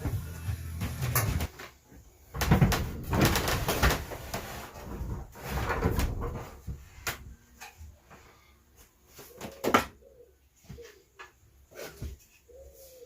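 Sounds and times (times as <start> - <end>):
wood rubbing and scraping: 0.0 - 8.4.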